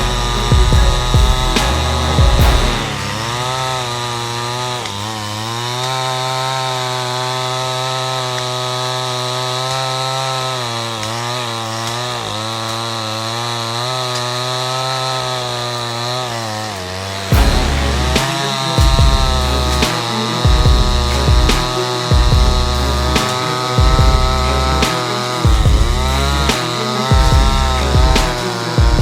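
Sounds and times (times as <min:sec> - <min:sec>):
loud low rumble: 0:00.0 - 0:04.2
chainsaw cutting wood: 0:00.0 - 0:29.0.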